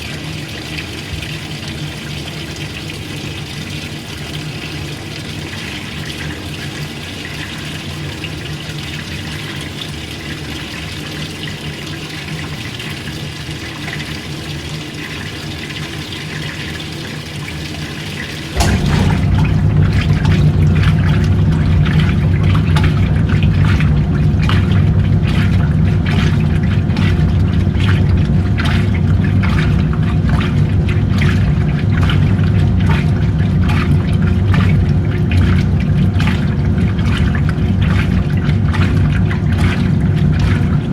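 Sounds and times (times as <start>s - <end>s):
washing machine water sloshing: 0.0s - 40.9s
low steady hum: 18.6s - 40.9s.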